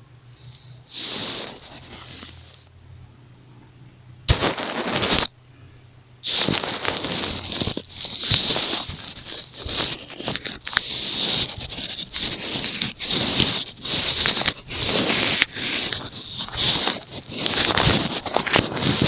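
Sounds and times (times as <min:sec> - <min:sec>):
brush rustling on microphone: 0:00.4 - 0:02.7, 0:06.2 - 0:19.0.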